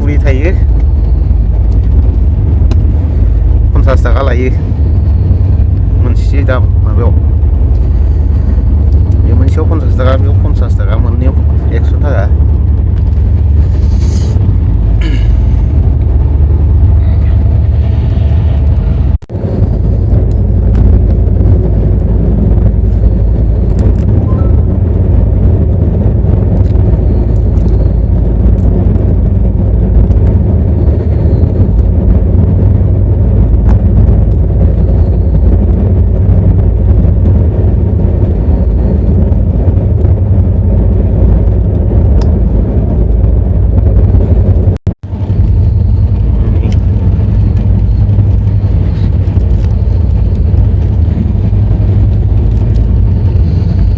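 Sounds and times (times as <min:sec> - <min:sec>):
passenger train rumbling: 0:00.0 - 0:53.9.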